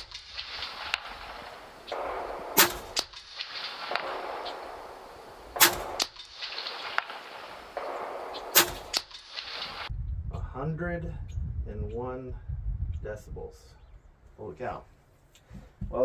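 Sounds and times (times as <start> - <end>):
air rifle shots cracking: 0.0 - 9.9.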